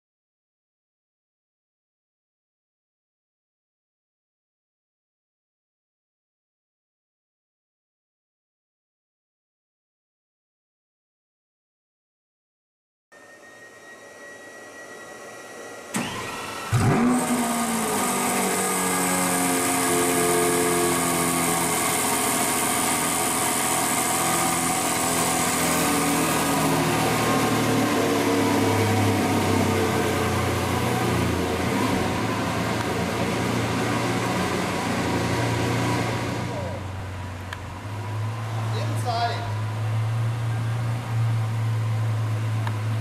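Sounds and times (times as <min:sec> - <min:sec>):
car engine starting and idling: 0:15.1 - 0:43.0
click: 0:42.6 - 0:42.8.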